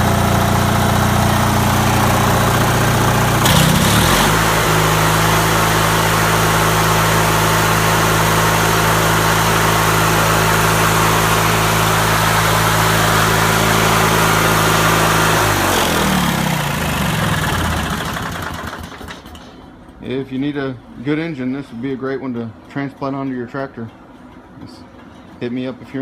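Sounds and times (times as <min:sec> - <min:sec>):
mower engine running: 0:00.0 - 0:19.4.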